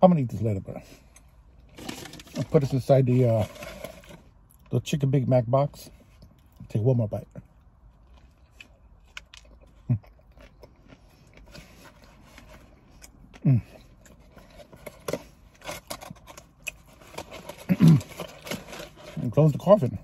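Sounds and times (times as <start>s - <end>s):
paper and cardboard crinkling: 1.7s - 4.3s, 14.1s - 20.0s
chewing food: 7.4s - 19.1s.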